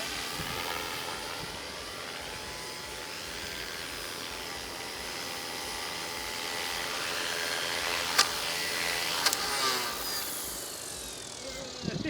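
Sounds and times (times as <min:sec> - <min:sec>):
model aircraft motor drone: 0:00.0 - 0:12.0
wind buffeting microphone: 0:00.2 - 0:01.7, 0:11.8 - 0:12.0.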